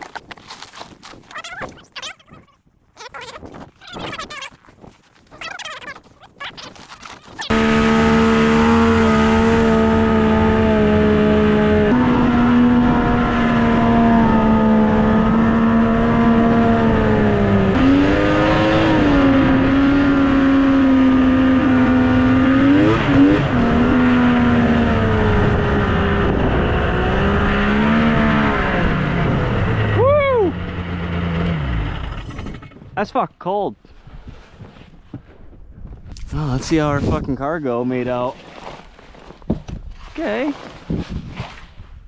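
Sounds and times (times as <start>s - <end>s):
snowmobile engine running: 6.8s - 32.7s.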